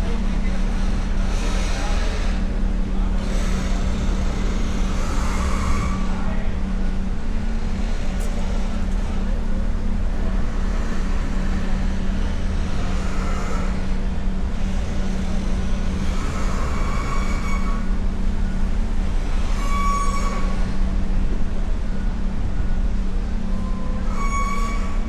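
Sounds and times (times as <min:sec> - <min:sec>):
vehicle engines humming: 0:07.1 - 0:17.0.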